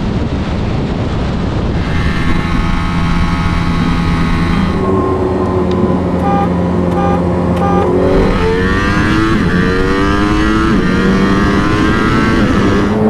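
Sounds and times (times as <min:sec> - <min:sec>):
high-performance engine accelerating: 0:00.8 - 0:13.0
short beeps: 0:03.7 - 0:09.2.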